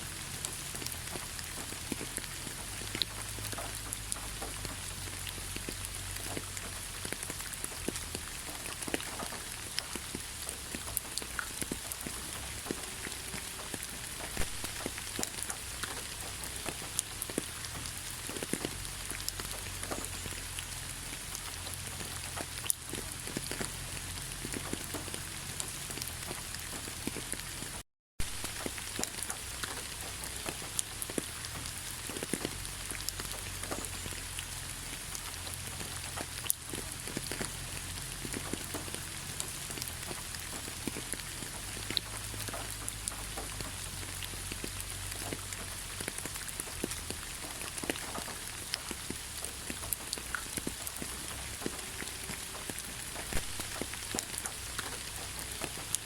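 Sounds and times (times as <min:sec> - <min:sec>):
raindrops ticking: 0:00.0 - 0:56.0
steady rain falling: 0:00.0 - 0:56.0.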